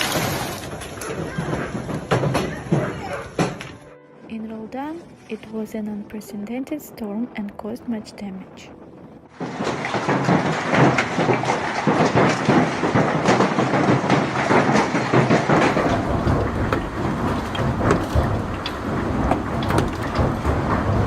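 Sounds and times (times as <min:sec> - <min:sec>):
heavy hail on hard surfaces: 0:00.0 - 0:03.8, 0:09.2 - 0:21.0.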